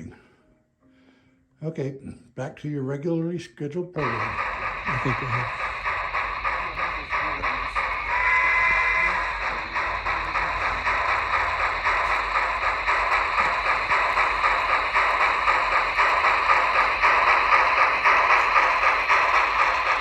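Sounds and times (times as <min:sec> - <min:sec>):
model train clattering on track: 0:04.0 - 0:20.0.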